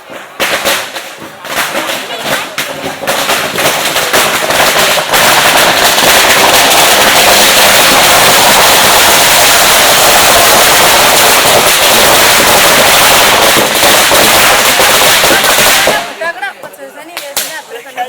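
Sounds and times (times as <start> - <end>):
firecrackers crackling: 0.0 - 18.0.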